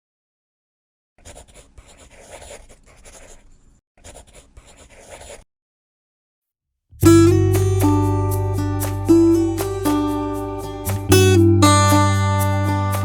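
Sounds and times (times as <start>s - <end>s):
pencil scratching on paper: 1.2s - 5.5s.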